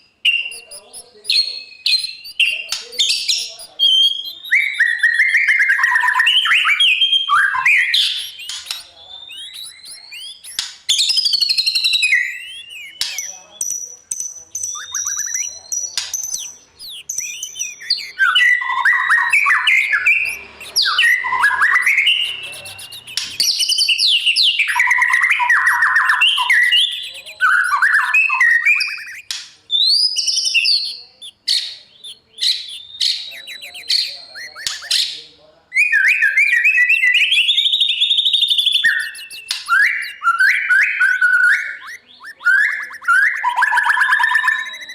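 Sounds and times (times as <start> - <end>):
bird singing whistles and trills: 0.0 - 44.9.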